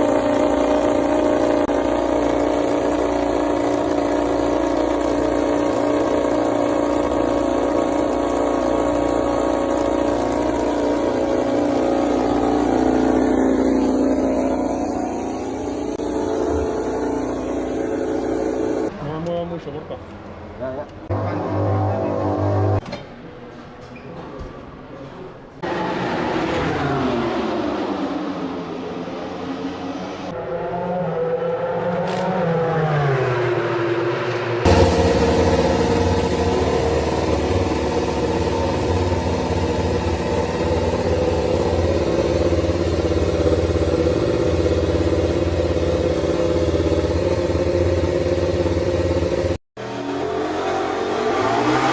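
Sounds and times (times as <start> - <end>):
engine running steadily: 0.0 - 18.9, 34.3 - 49.6.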